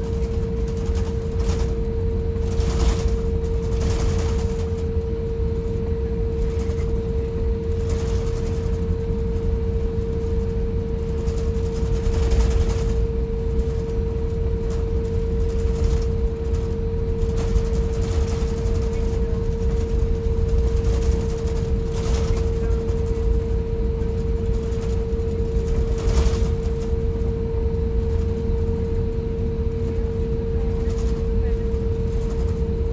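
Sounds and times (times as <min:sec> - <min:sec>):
aircraft cabin rumble and hum: 0:00.0 - 0:32.9.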